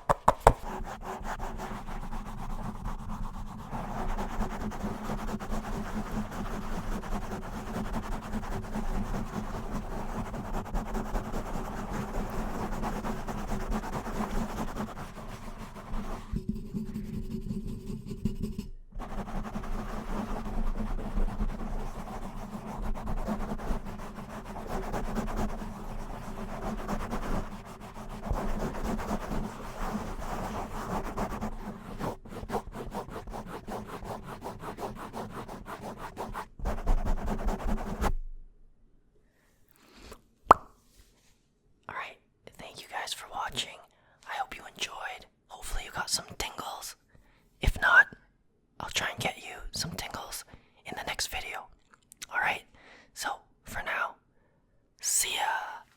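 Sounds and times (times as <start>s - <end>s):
quick tapping: 0.0s - 0.7s
scratching and rubbing on surface: 0.0s - 38.2s.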